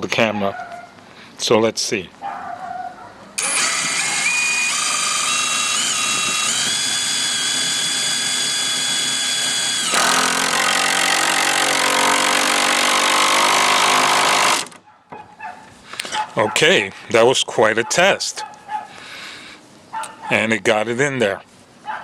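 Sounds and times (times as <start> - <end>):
impact driver hammering: 3.4 - 14.8
impact driver motor whining: 3.4 - 14.8.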